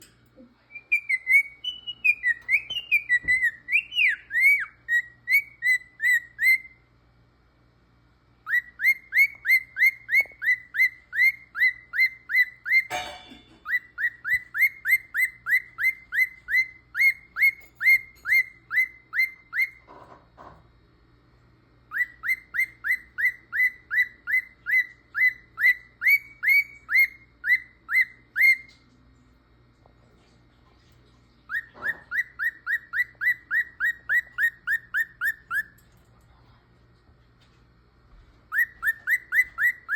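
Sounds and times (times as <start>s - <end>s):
cockatiel whistling: 0.7s - 6.9s, 8.4s - 20.0s, 21.9s - 28.8s, 31.5s - 35.8s, 38.5s - 39.9s.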